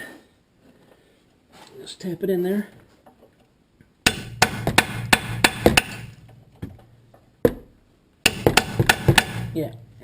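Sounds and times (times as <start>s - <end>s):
hammer tapping steel chisel: 8.3s - 9.5s.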